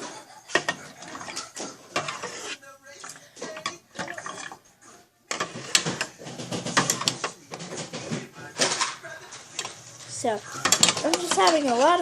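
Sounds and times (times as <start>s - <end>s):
utensil scraping a bowl: 0.5s - 4.6s, 5.3s - 7.8s.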